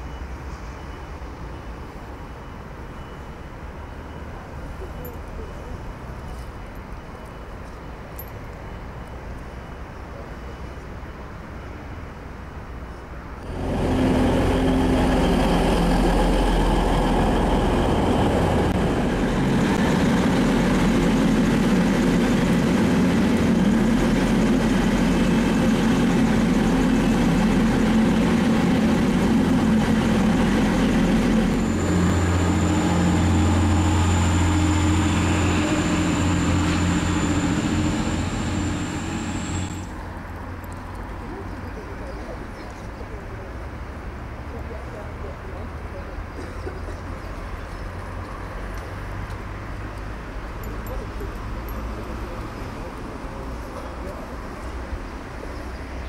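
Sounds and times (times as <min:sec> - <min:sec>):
train engine rumble: 0:00.0 - 0:56.0
high steady whine: 0:13.4 - 0:39.9.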